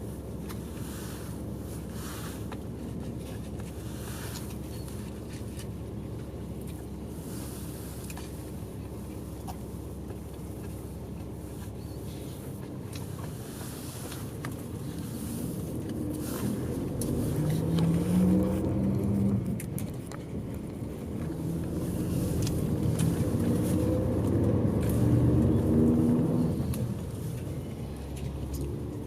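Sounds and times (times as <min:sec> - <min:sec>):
bus engine accelerating through gears: 0:00.0 - 0:29.0.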